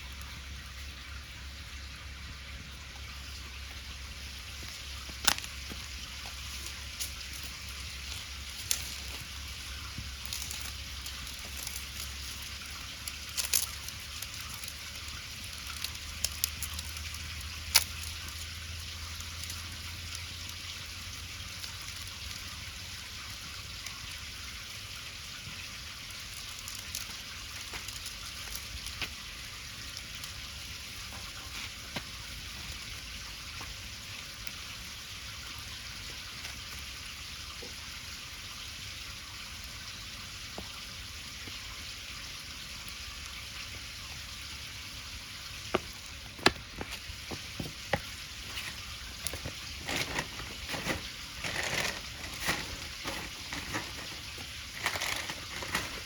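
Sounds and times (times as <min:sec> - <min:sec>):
batter sizzling in a pan: 0:03.3 - 0:46.4.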